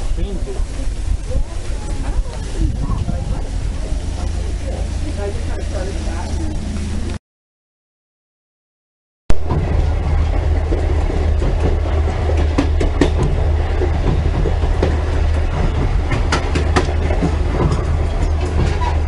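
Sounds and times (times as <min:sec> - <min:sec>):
train rumble: 0:00.0 - 0:07.2, 0:09.3 - 0:19.0
wheels clicking and knocking: 0:09.4 - 0:19.0.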